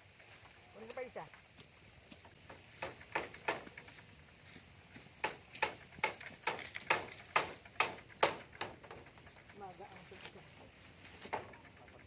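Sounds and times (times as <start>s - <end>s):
hammer driving nails into wood: 2.5s - 3.8s, 5.2s - 9.0s.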